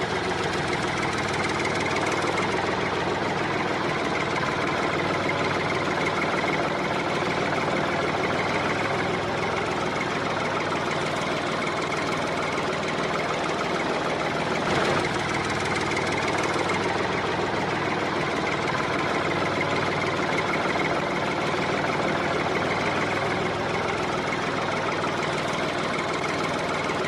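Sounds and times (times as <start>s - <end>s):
small motor running: 14.5s - 16.7s.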